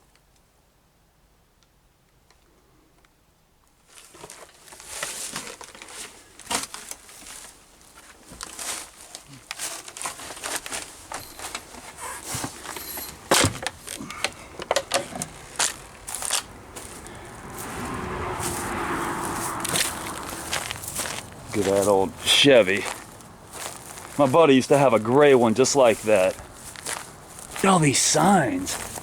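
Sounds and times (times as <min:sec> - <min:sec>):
footsteps crunching through dry brush: 0:04.0 - 0:14.6, 0:15.3 - 0:29.0
twigs snapping: 0:13.7 - 0:17.1.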